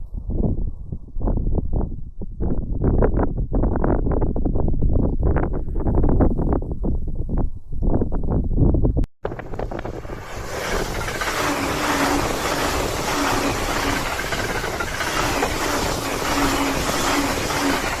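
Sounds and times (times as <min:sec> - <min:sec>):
train wheels on rail: 0:09.3 - 0:18.0.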